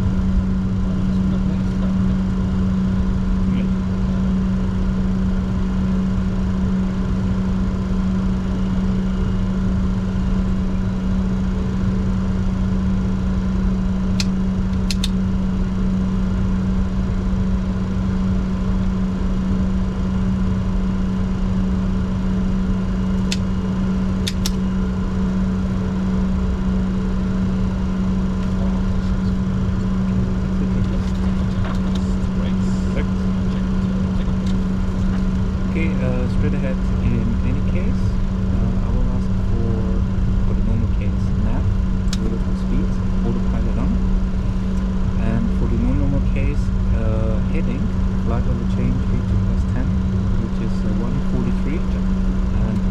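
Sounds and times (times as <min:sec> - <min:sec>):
jet engine cockpit roar: 0:00.0 - 0:52.9
brief clicks: 0:14.2 - 0:15.2.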